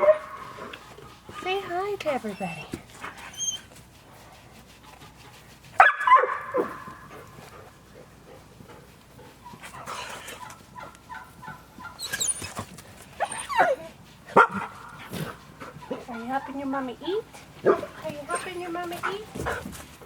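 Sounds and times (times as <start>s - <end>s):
dog yelping and whining: 2.2s - 3.8s, 11.9s - 14.7s.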